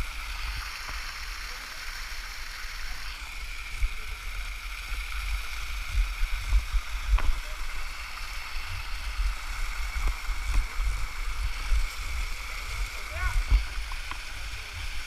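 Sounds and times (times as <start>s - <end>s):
small waterfall rushing: 0.0s - 15.0s.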